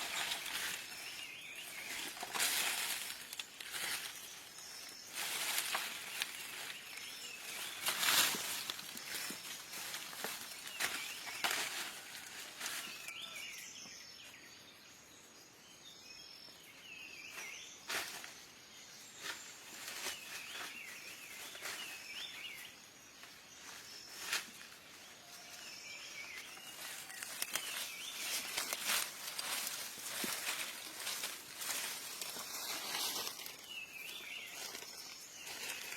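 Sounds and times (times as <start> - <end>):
small bird chirping: 12.9 - 35.9.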